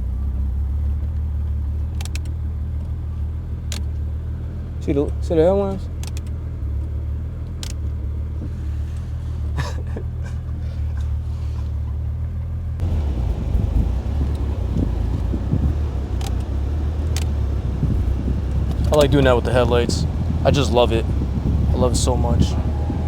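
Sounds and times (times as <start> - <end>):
car engine low hum: 0.0 - 23.0
light clicks: 1.9 - 3.0, 6.0 - 6.4, 7.4 - 7.9, 12.8 - 19.1
rough rumble: 7.9 - 23.0.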